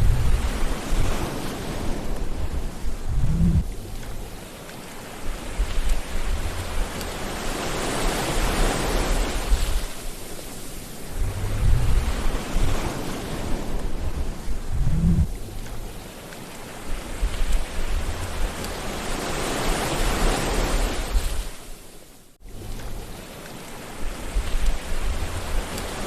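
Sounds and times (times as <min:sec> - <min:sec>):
surf hissing on shore: 0:00.0 - 0:22.2, 0:23.0 - 0:26.0
deep rumbling breaker: 0:02.3 - 0:04.3, 0:11.0 - 0:13.0, 0:13.6 - 0:16.0.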